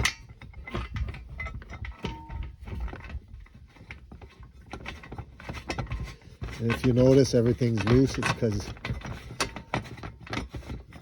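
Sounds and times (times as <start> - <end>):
metal rails clicking and clanking: 0.0 - 11.0.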